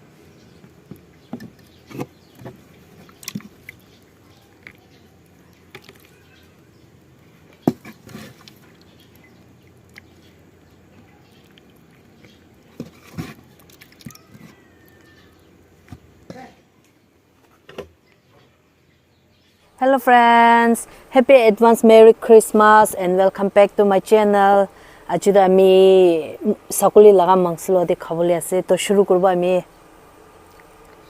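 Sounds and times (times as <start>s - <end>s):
faint steady hum: 0.0s - 31.0s
chewing and mouth clicks: 3.0s - 6.3s, 8.3s - 10.4s, 11.0s - 12.8s.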